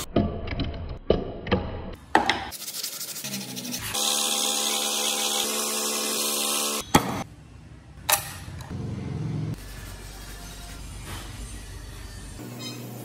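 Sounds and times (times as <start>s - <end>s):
sanding wood: 2.5s - 6.8s.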